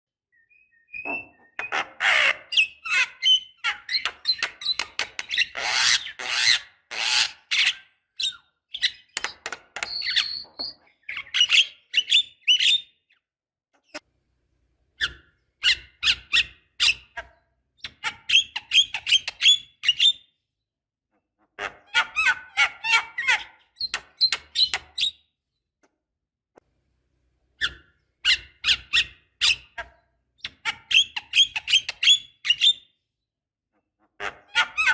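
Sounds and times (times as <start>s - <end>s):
bird chattering song: 0.4s - 6.6s, 7.5s - 12.9s, 27.6s - 32.8s.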